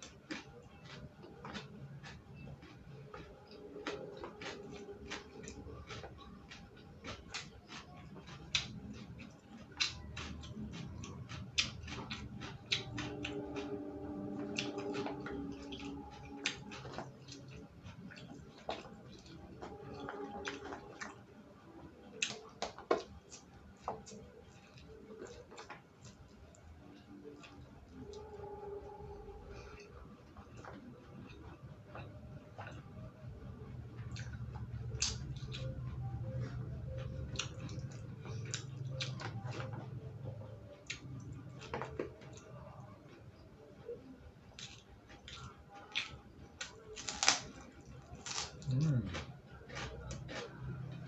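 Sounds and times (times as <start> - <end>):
chewing raw vegetables: 0.0 - 51.0.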